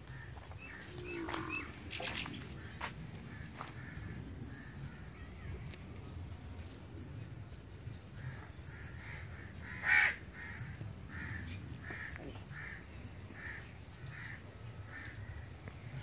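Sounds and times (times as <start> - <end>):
bird calling: 0.0 - 4.0.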